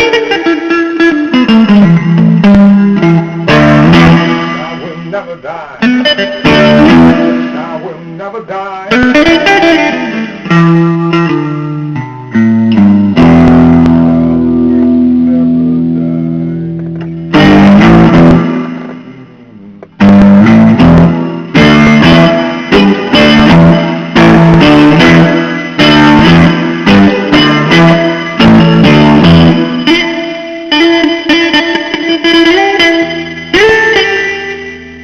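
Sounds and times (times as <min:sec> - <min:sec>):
blues guitar playing: 0:00.0 - 0:35.0.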